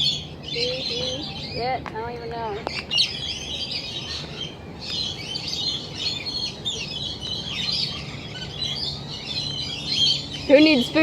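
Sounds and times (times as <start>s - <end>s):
many birds chirping: 0.0s - 11.0s.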